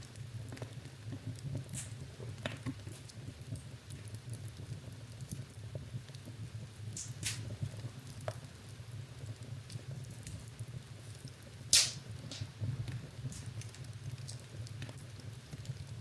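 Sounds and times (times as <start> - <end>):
wood fire crackling: 0.0 - 16.0
loud pop from fire: 7.0 - 7.6, 11.7 - 13.8.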